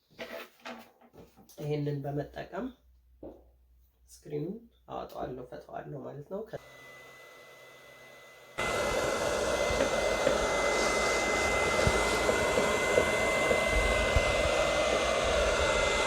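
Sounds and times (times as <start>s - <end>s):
hot-air blower rushing and whining: 6.6s - 16.0s.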